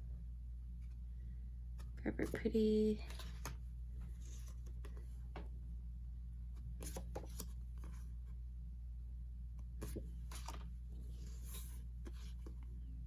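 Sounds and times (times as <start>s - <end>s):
steady low hum: 0.0s - 13.0s
card rustling and tapping: 6.8s - 8.0s, 9.8s - 12.7s.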